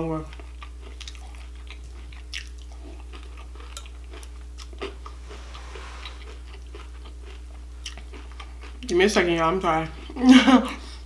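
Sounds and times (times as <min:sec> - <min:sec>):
chewing cereal crunches: 0:00.2 - 0:05.0
steady low hum: 0:01.7 - 0:08.7.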